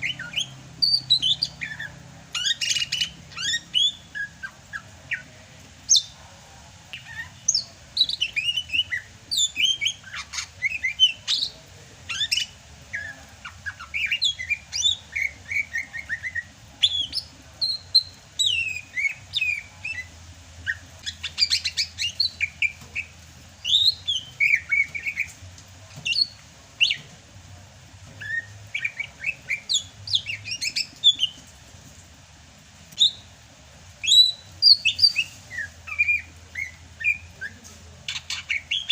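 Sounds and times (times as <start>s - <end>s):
bird singing chirps and whistles: 33.0s - 33.2s, 34.0s - 37.6s.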